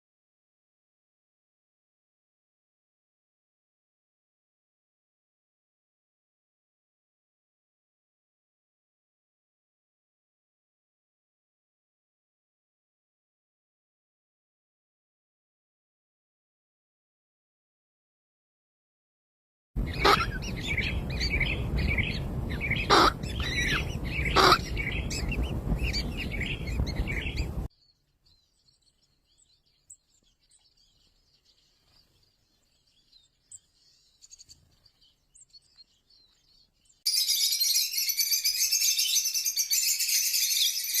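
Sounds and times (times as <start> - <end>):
birds chirping and calling: 19.8 - 41.0.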